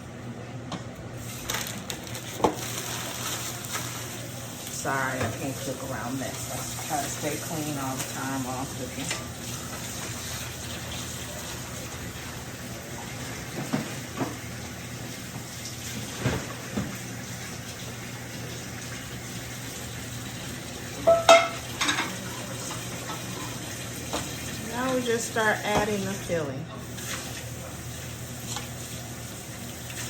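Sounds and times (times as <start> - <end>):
utensils clinking: 21.0 - 23.6
dishes clattering: 21.0 - 24.4.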